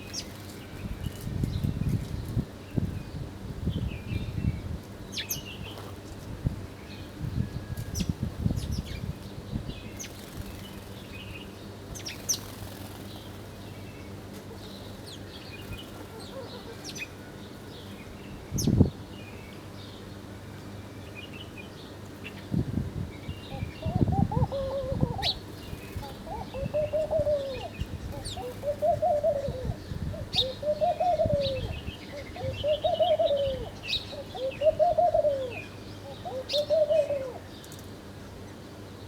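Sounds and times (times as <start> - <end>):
small birds chirping: 7.8 - 20.2, 23.2 - 39.0.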